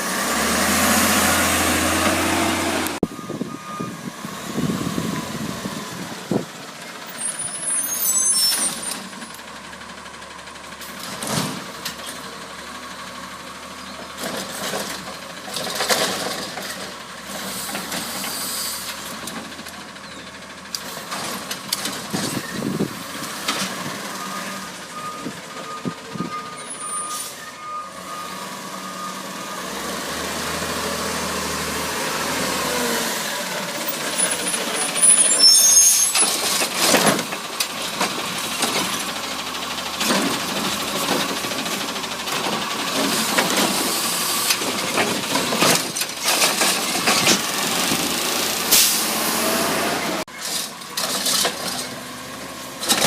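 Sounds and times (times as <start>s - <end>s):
garbage truck running: 0.0s - 53.0s
air brake hisses: 17.4s - 18.9s.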